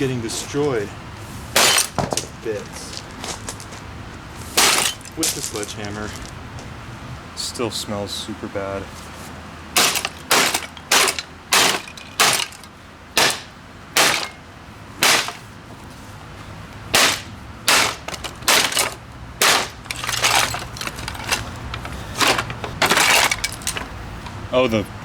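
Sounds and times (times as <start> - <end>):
sledgehammer smashing motor: 1.6 - 2.3, 4.6 - 5.2, 9.8 - 14.4, 15.0 - 15.6, 16.9 - 24.0.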